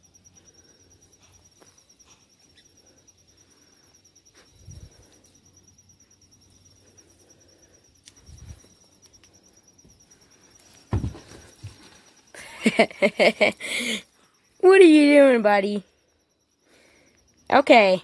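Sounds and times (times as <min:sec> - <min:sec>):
high-pitched insect trilling: 0:00.0 - 0:18.0
soft low thump: 0:10.9 - 0:11.8.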